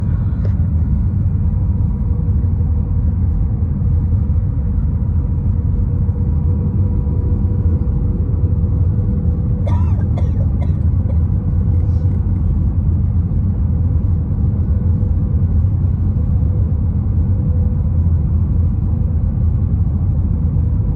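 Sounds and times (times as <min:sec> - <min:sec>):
aircraft cabin rumble: 0:00.0 - 0:20.9
faint steady hum: 0:00.0 - 0:20.9.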